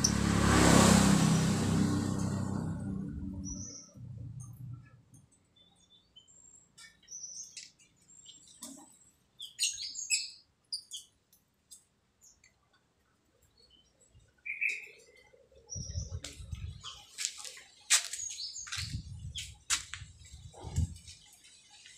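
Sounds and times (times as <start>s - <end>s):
low rumble: 1.2s - 5.0s
starling chirps and squawks: 9.4s - 11.1s.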